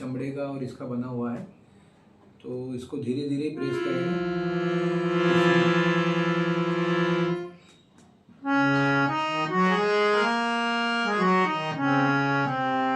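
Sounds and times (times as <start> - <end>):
harmonium notes: 3.6 - 7.7, 8.4 - 12.9.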